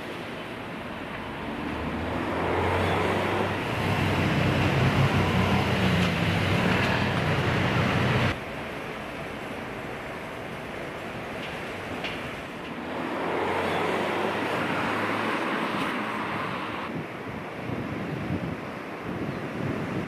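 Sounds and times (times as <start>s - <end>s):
vehicle passing close by: 1.2s - 8.4s, 12.8s - 16.9s.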